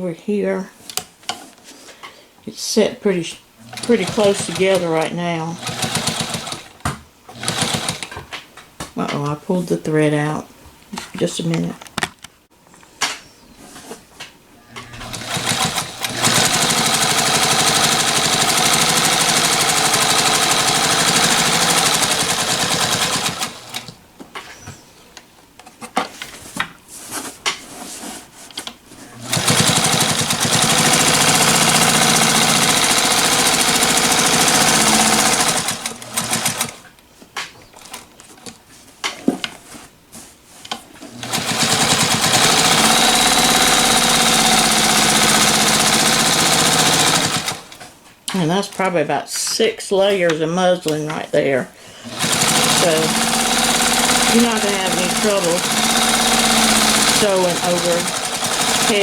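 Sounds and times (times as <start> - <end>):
sewing machine running: 3.6 - 8.2, 14.7 - 24.0, 29.2 - 36.9, 41.1 - 47.9, 52.0 - 59.0.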